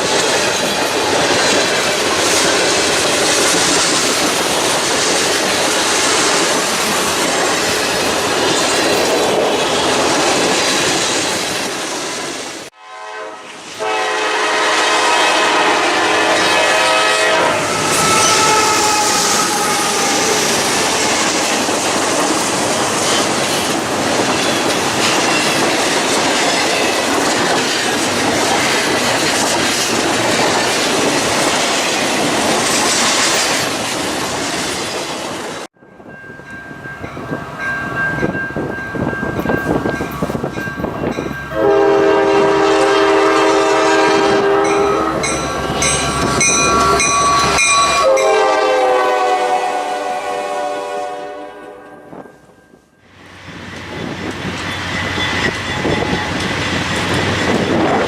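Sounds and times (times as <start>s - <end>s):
train wheels on rails: 0.0s - 12.8s, 13.4s - 58.0s
locomotive air horn chord: 12.7s - 20.4s, 41.5s - 45.3s, 46.6s - 52.2s.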